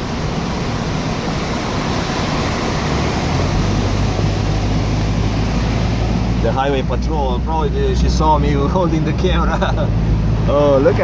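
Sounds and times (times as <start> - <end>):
tyres hissing on wet road: 0.0 - 11.0.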